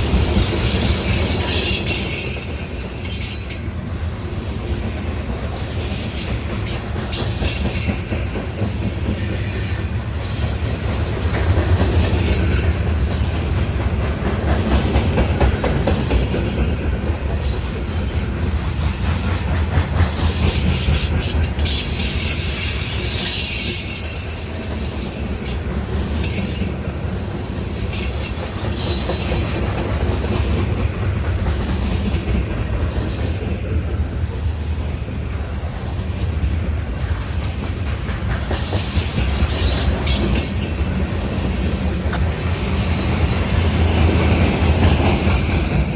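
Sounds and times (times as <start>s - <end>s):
freight train rumbling past: 0.0s - 45.9s
wheels clacking over rail joints: 0.0s - 45.9s
high wheel squeal: 0.1s - 11.4s, 19.4s - 30.3s, 38.6s - 43.8s.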